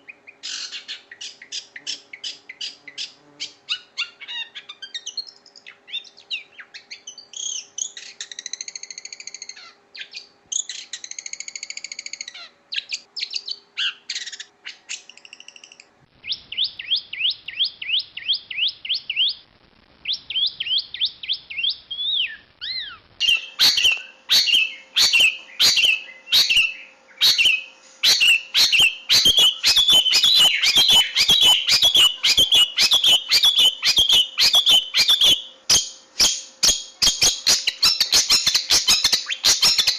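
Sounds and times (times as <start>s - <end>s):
shrike singing and chattering: 0.0s - 19.4s, 20.1s - 39.9s.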